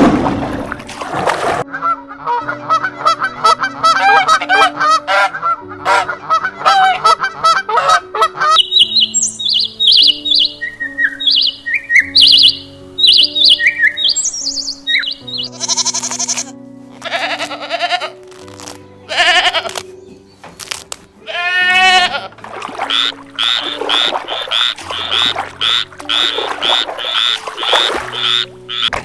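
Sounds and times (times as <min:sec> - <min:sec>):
background music: 0:00.0 - 0:29.0
animal bleating: 0:15.3 - 0:18.2, 0:19.0 - 0:19.8, 0:21.2 - 0:22.3.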